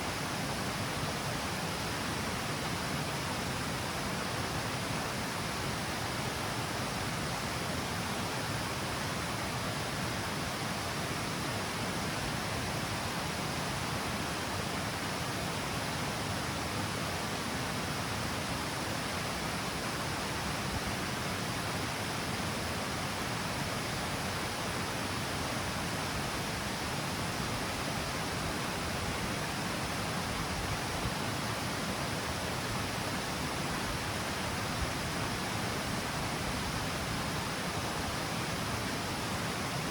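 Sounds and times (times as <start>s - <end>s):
water rushing over cascade: 0.0s - 39.9s.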